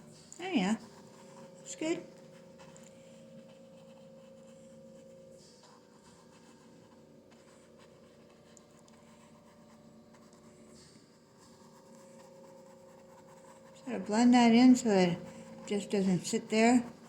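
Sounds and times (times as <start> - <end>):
steady low hum: 0.0 - 17.0
paintbrush scratching on canvas: 0.2 - 17.0.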